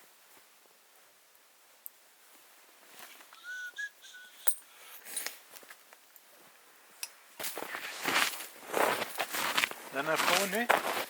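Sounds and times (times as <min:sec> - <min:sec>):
high whistle-like note: 0:03.4 - 0:04.6.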